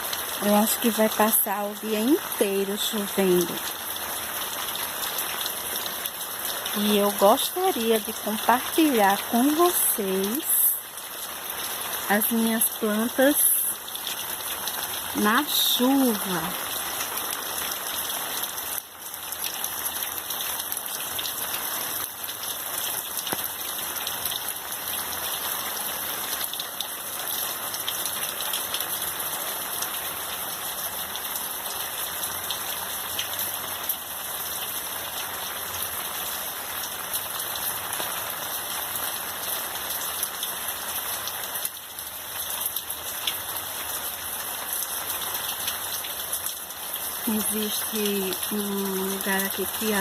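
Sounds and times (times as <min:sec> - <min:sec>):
steady rain on plants: 0:00.0 - 0:50.0
raindrop ticks: 0:22.0 - 0:24.5.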